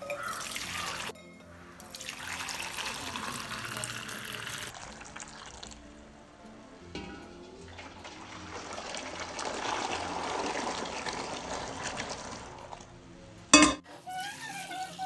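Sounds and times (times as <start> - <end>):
liquid pouring in a thin stream: 0.0 - 1.2, 1.8 - 5.9, 7.7 - 12.9, 13.9 - 15.0.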